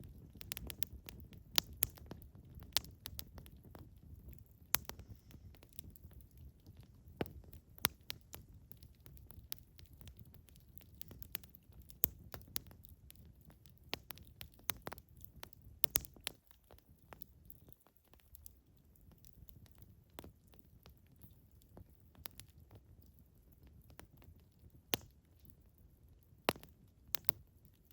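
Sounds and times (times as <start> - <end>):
campfire crackling: 0.0 - 27.9
low rumble of flames: 0.0 - 27.9
sharp pops of fire: 0.2 - 3.8, 4.4 - 6.3, 7.1 - 10.2, 13.9 - 16.4, 24.9 - 25.2, 26.5 - 27.4.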